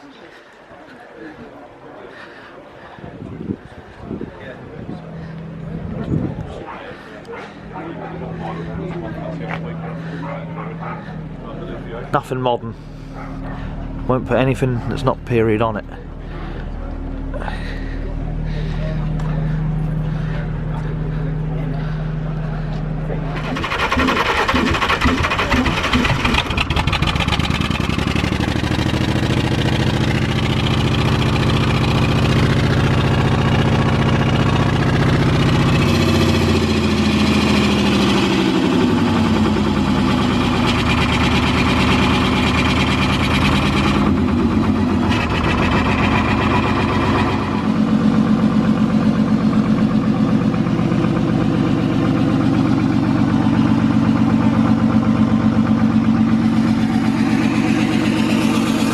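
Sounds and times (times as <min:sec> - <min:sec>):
truck engine revving: 0:12.8 - 0:58.9.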